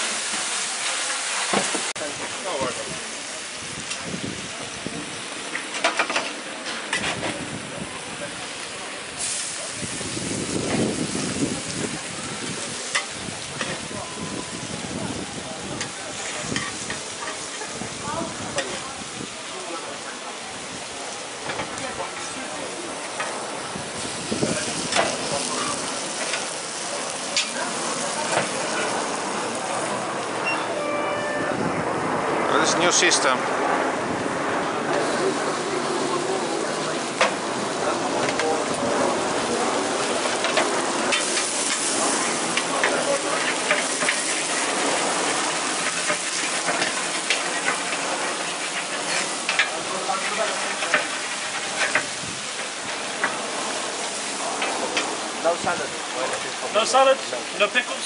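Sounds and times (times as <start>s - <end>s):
food sizzling: 0.0s - 31.9s, 33.9s - 58.0s.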